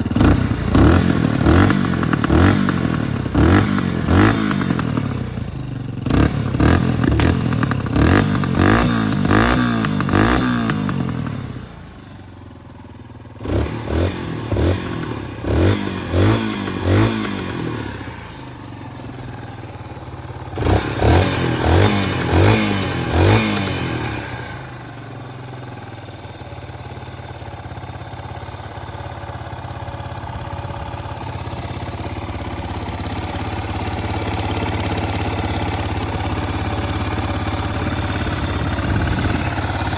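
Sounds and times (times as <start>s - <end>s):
motorcycle engine revving and idling: 0.0s - 39.9s.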